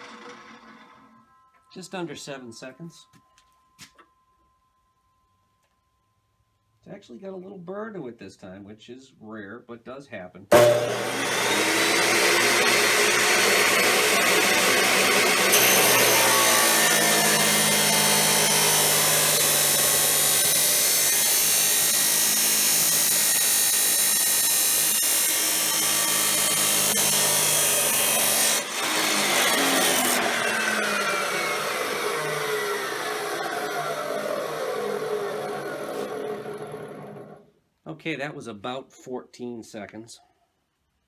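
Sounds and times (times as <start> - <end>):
motor winding down: 0.0 - 1.1, 10.5 - 37.4
chop saw grinding steel: 10.5 - 37.4.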